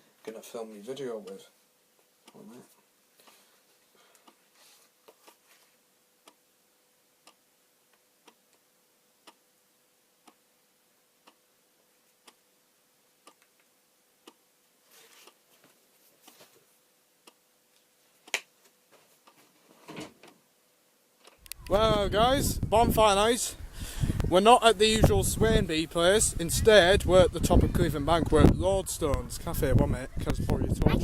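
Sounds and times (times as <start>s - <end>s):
faint steady hum: 0.0s - 31.0s
clock ticking: 2.2s - 2.5s, 6.2s - 6.4s, 7.2s - 7.5s, 9.2s - 9.5s, 10.2s - 10.5s, 11.2s - 11.5s, 12.2s - 12.4s, 13.2s - 13.6s, 14.2s - 14.5s.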